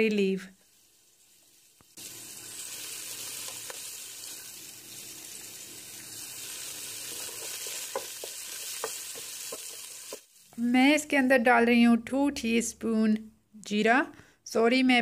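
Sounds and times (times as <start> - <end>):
food sizzling in hot oil: 0.0 - 11.2
wooden spoon stirring: 7.0 - 10.3
spoon knocking against pot: 7.3 - 10.2.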